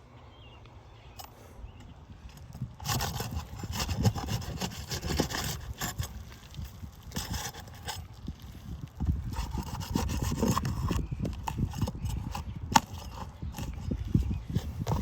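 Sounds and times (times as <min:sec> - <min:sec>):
knocks and scuffs on shingle roof: 0:02.4 - 0:08.2, 0:09.0 - 0:15.0.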